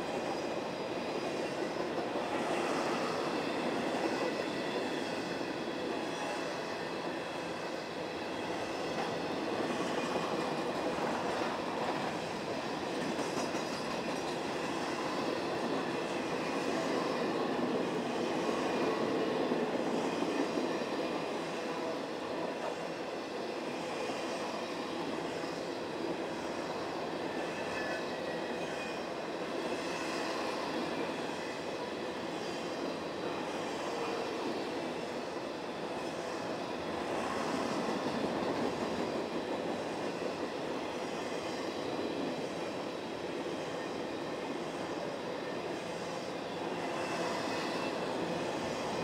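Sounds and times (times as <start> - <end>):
freight train passing: 0.0 - 49.0.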